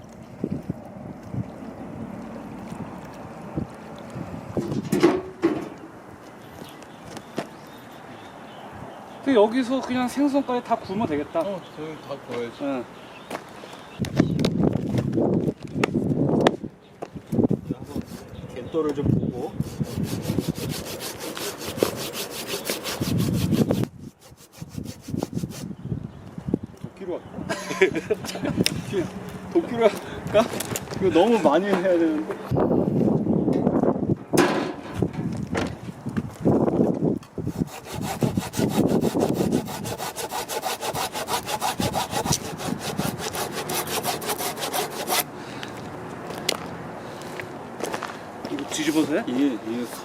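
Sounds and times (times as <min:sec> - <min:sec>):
hand saw cutting wood: 0:19.5 - 0:25.7, 0:37.4 - 0:45.3.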